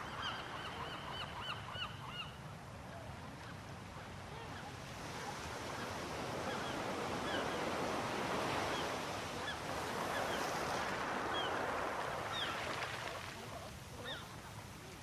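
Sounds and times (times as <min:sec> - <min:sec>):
sea surf rushing on shore: 0:04.3 - 0:15.0.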